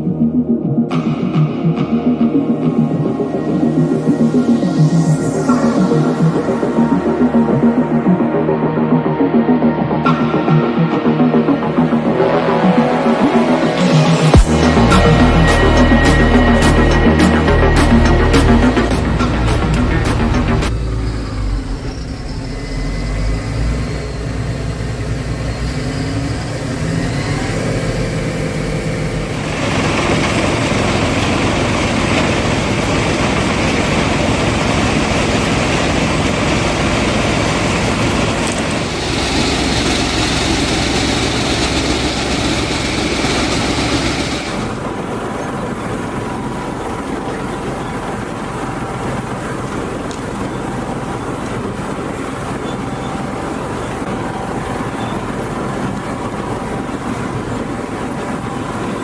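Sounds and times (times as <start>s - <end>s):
wood chipper running: 13.8s - 59.0s.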